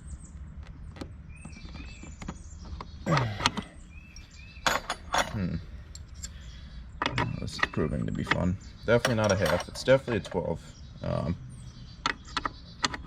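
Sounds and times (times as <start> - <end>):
person grunting with effort: 3.1 - 3.7.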